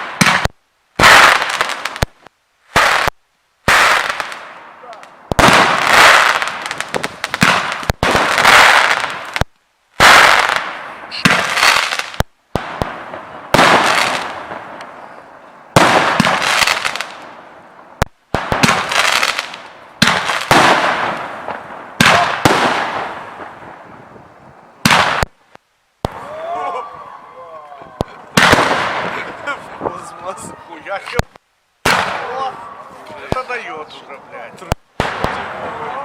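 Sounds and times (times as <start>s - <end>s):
firework hiss: 0.0s - 26.3s
firework bangs: 0.0s - 26.4s, 27.8s - 36.0s.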